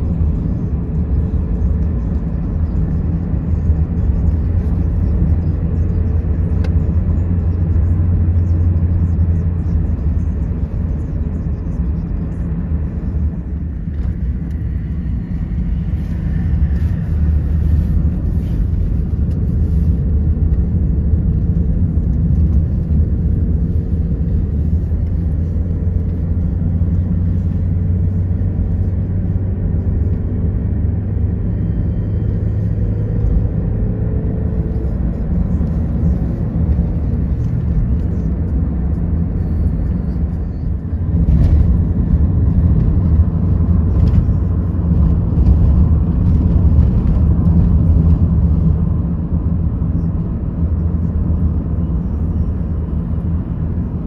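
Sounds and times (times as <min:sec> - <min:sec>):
car cabin road and engine noise: 0:00.0 - 0:54.0.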